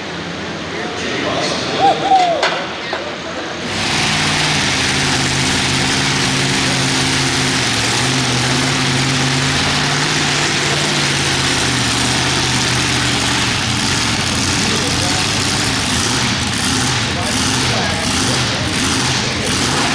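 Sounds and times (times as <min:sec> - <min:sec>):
tractor engine at high revs: 0:03.6 - 0:19.9.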